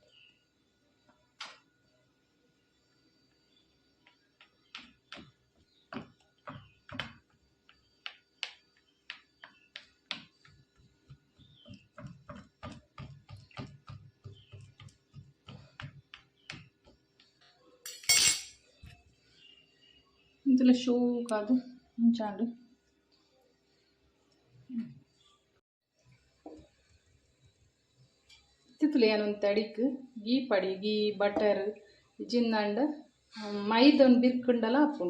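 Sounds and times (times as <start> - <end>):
fork tapping dough on a board: 4.4 - 17.3.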